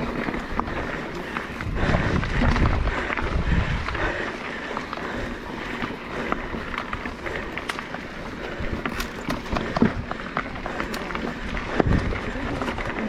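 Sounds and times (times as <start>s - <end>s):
tyres crunching on dirt and rocks: 0.0s - 13.0s
wind buffeting microphone: 0.0s - 13.0s
bike knocks and rattles: 7.4s - 13.0s.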